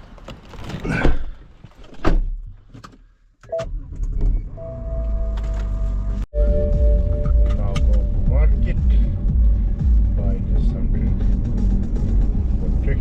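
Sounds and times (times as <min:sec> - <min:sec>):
steady tone: 0:04.6 - 0:12.4
car engine running: 0:05.1 - 0:13.0.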